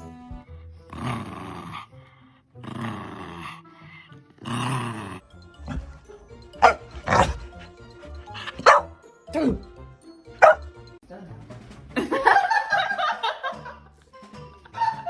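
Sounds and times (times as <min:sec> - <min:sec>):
background music: 0:00.0 - 0:15.0
dog growling: 0:00.8 - 0:08.6
dog barking sharply: 0:10.4 - 0:10.6.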